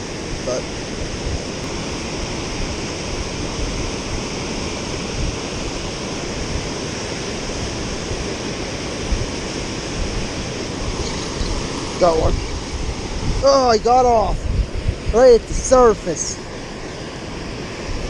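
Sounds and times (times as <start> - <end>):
water rushing over spillway: 0.0 - 18.0.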